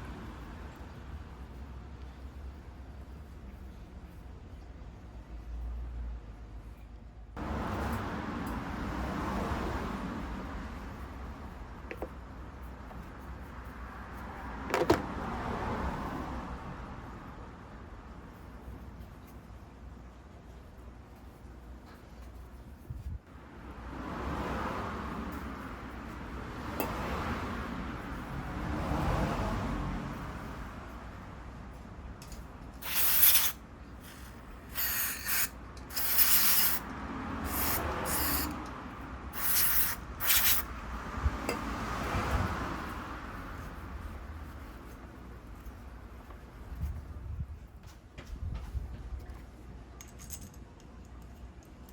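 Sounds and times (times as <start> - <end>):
cleaning spray hissing: 32.8 - 36.8, 37.4 - 38.5, 39.4 - 40.6.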